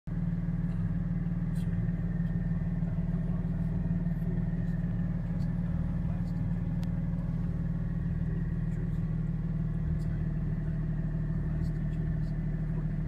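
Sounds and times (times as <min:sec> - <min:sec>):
car engine idling: 0:00.1 - 0:13.0.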